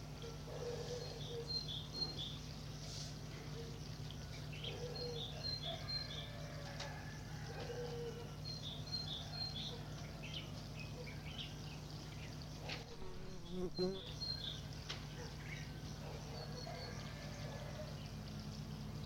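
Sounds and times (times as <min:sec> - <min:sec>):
small songbird singing: 0:00.6 - 0:06.6, 0:07.9 - 0:19.0.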